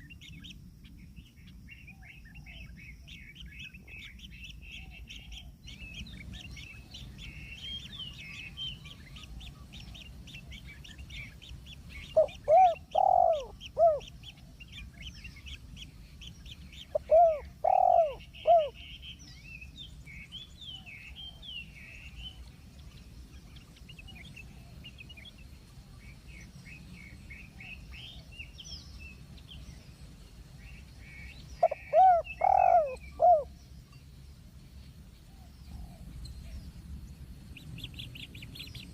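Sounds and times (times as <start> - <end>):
low hooting bird notes: 16.9 - 18.8, 31.6 - 33.5.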